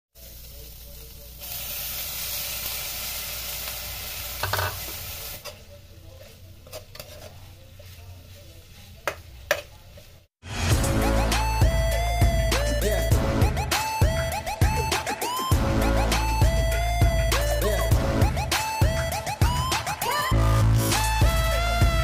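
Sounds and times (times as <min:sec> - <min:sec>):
oil sizzling in a wok: 0:00.2 - 0:05.6
spatula scraping a wok: 0:06.2 - 0:10.2.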